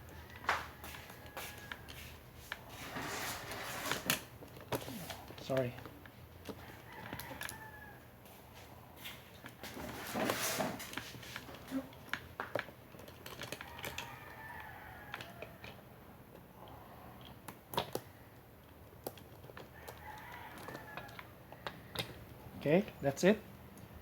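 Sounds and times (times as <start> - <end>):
rooster crowing faintly: 0.0 - 3.7, 6.5 - 9.1, 13.5 - 16.0, 19.5 - 22.3
small parts clicking and knocking: 3.8 - 7.8, 9.3 - 24.0.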